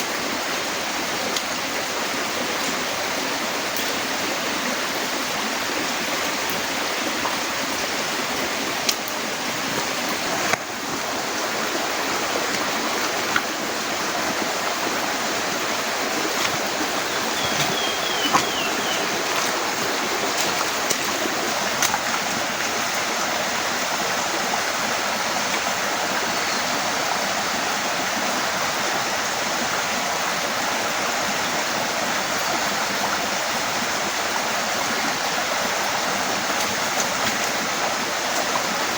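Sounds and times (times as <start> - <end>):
heavy rain hiss: 0.0 - 38.9
faint high chirps: 16.9 - 19.4.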